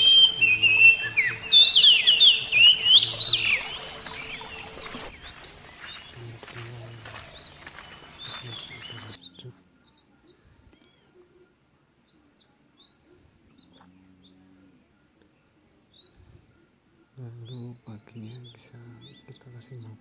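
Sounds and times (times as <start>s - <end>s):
bird chirping whistled notes: 0.0s - 9.5s.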